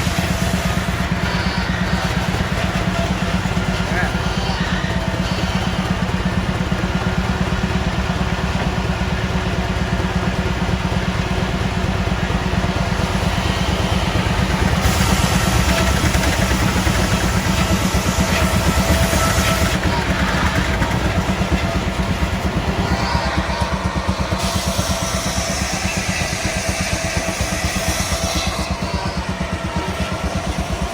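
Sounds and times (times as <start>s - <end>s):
hiss: 0.0s - 6.0s, 12.2s - 30.8s
engine running with low pulsing: 0.0s - 30.9s.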